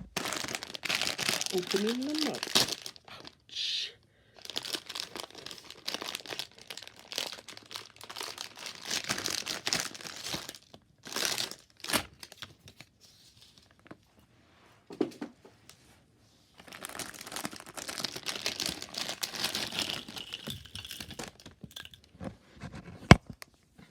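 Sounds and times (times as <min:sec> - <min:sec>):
plastic packaging crinkling and tearing: 0:00.0 - 0:03.5, 0:04.4 - 0:14.0, 0:16.6 - 0:22.1.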